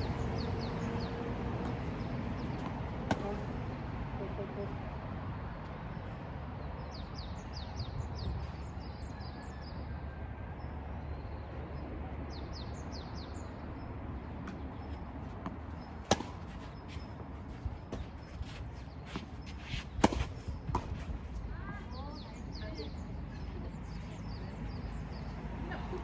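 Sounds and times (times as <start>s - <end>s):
tennis ball struck by racket: 1.6s - 3.6s, 15.4s - 16.8s, 17.9s - 21.2s
small birds chirping: 11.1s - 25.8s.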